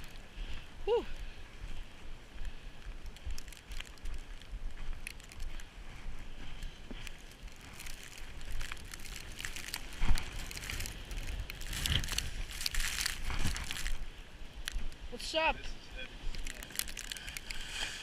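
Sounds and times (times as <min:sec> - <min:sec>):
footsteps crunching in snow: 0:00.0 - 0:15.0, 0:16.2 - 0:18.0
wind rumble on microphone: 0:00.0 - 0:15.2.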